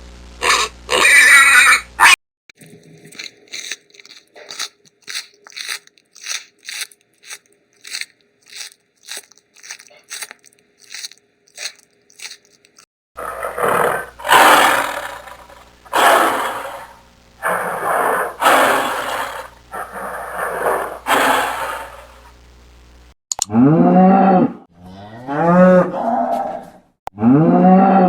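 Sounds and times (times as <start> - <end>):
animal chewing crunchy food: 2.5 - 22.2
loud rough noise: 3.2 - 22.3.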